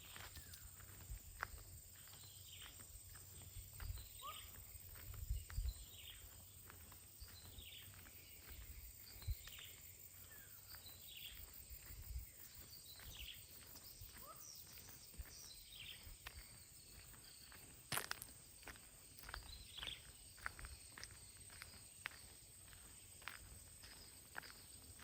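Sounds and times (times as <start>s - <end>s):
faint outdoor ambience: 0.0s - 25.0s
soft footsteps on a path: 0.0s - 25.0s.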